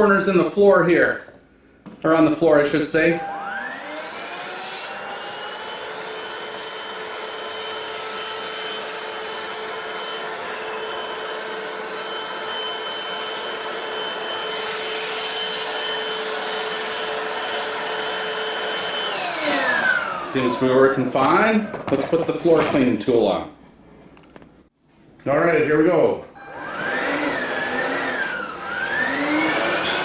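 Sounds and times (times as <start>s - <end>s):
vacuum motor whining: 2.9s - 22.0s, 26.4s - 30.0s.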